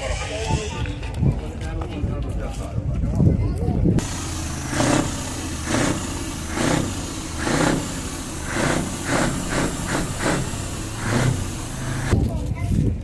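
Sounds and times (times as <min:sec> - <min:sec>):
heavy truck engine rumbling: 0:04.0 - 0:12.2
short engine bursts: 0:04.0 - 0:12.2.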